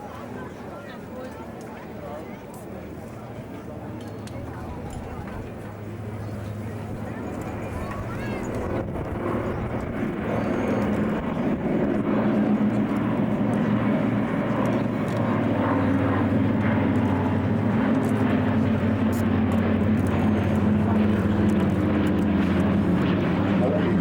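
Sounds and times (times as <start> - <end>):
propeller airliner engines droning: 0.0 - 24.0.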